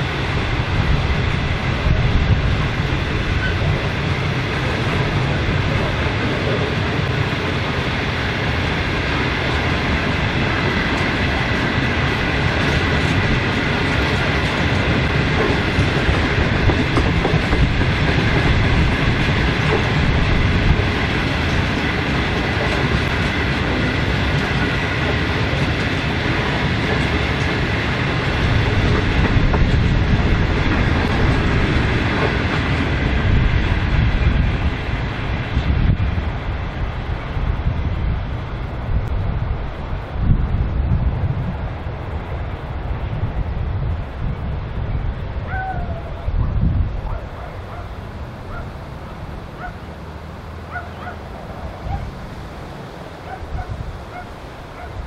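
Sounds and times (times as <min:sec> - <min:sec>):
steel wheels rumbling on rails: 0:00.0 - 0:55.0.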